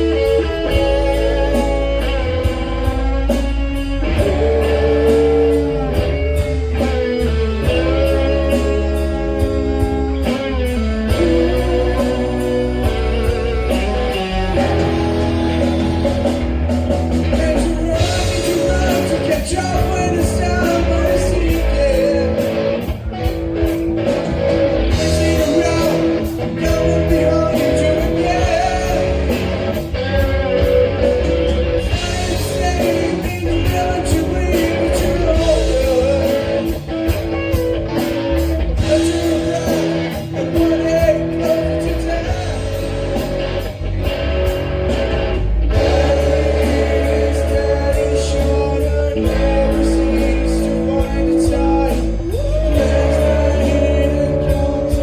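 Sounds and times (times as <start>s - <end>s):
person singing: 0.0s - 10.4s, 11.1s - 22.8s, 24.9s - 29.9s, 45.8s - 55.0s
drums: 0.0s - 55.0s
electric guitar: 0.0s - 55.0s
rock music: 0.0s - 55.0s.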